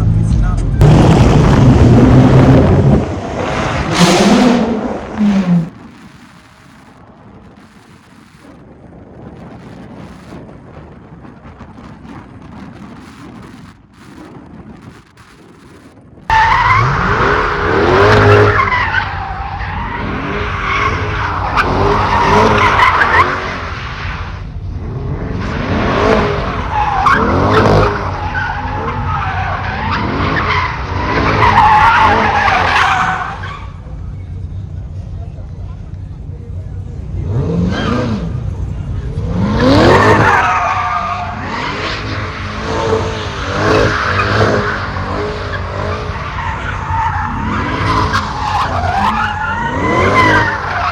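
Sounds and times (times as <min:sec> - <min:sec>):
car engine revving: 0:00.7 - 0:34.0, 0:36.5 - 0:50.9
tyres squealing and skidding: 0:01.8 - 0:07.0, 0:16.3 - 0:24.4, 0:25.5 - 0:33.9, 0:37.2 - 0:38.6, 0:39.2 - 0:50.9.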